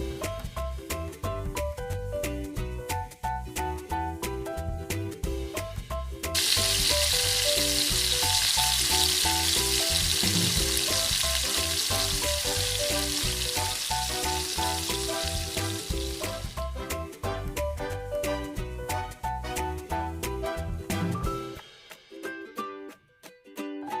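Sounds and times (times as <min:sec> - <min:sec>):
background music with steady beat: 0:00.0 - 0:24.0
food sizzling in hot oil: 0:06.4 - 0:17.0.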